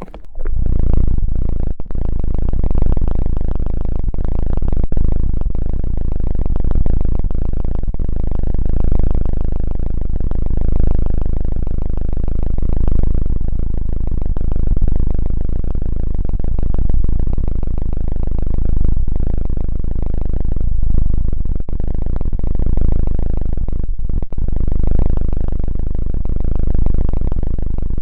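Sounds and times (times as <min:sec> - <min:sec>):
low rumbling rubbing on microphone: 0:00.0 - 0:01.2.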